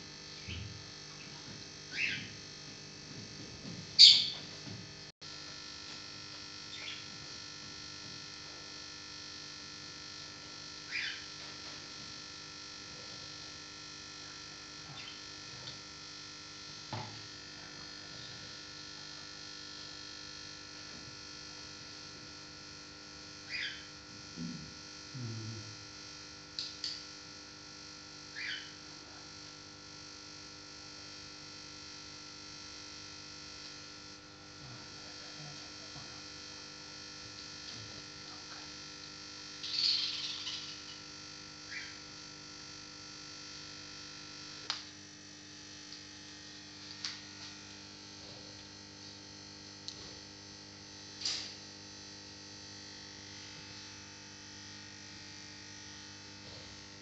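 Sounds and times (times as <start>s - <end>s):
steady electrical hum: 0.0s - 57.0s
small bird chirping: 1.9s - 2.3s, 4.0s - 4.4s, 6.7s - 7.0s, 10.9s - 11.2s, 14.9s - 15.2s, 23.5s - 23.9s, 28.4s - 28.7s, 39.6s - 41.0s, 41.7s - 42.0s.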